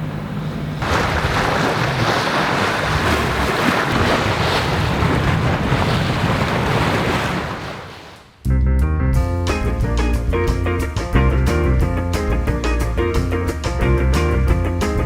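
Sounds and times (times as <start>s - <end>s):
wind buffeting microphone: 0.8s - 8.2s
sea water rushing past boat: 0.8s - 8.4s.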